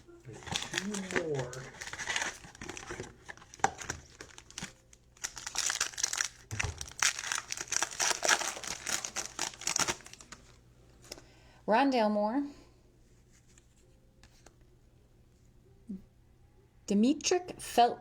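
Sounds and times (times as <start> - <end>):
plastic wrapper tearing and crinkling: 0.3 - 10.6.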